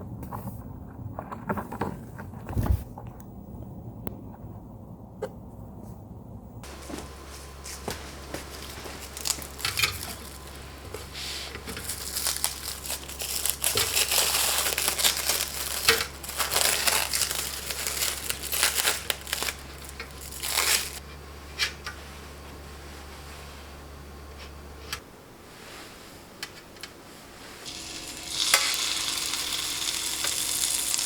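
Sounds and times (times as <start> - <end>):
steady low hum: 2.4 - 31.0
packaging crinkling: 7.8 - 21.0, 27.6 - 31.0.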